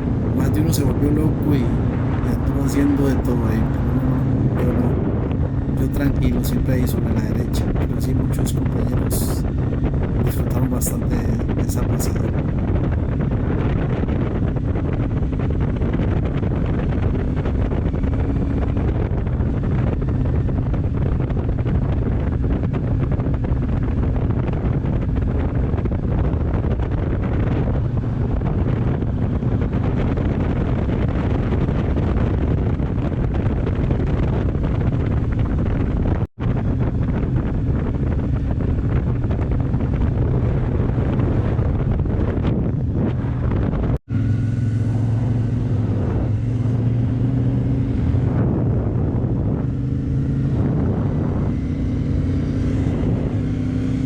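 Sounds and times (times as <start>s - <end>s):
wind noise on microphone: 0.0s - 54.0s
motorcycle engine running: 43.1s - 54.0s.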